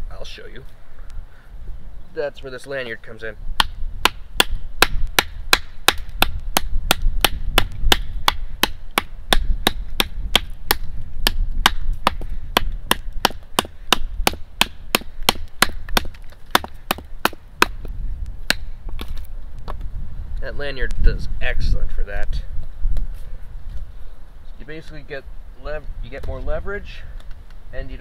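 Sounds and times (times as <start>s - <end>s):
knife chopping into wood: 3.6s - 17.8s.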